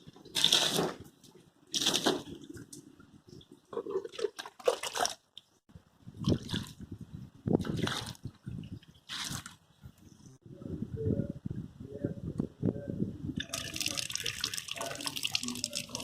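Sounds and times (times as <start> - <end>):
water splashing in bursts: 13.4 - 16.0.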